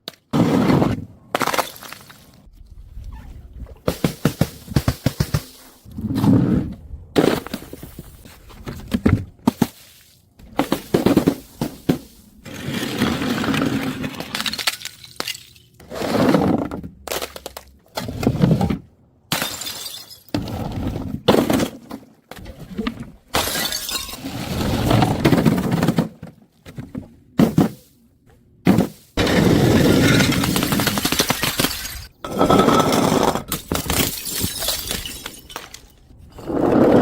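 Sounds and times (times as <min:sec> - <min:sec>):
glass bottles smashing: 0:14.2 - 0:15.8, 0:19.3 - 0:20.5, 0:23.4 - 0:24.4, 0:29.6 - 0:36.2.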